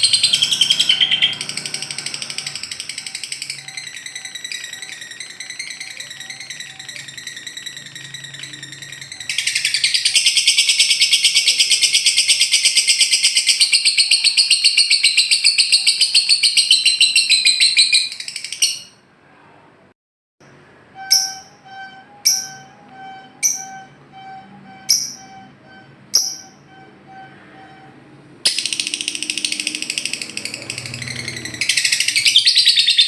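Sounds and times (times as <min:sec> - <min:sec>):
lovebird rattling trill: 0:00.0 - 0:18.9, 0:26.1 - 0:26.6, 0:28.5 - 0:33.0.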